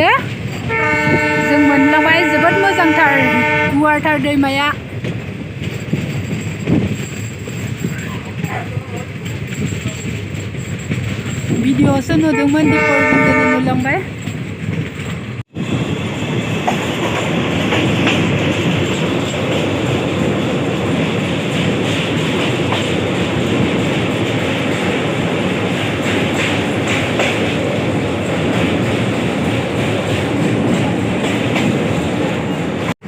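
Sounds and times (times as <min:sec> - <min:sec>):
train wheels rumbling on track: 0:00.0 - 0:33.0
wheels clicking over rail joints: 0:04.2 - 0:15.4, 0:16.6 - 0:32.9.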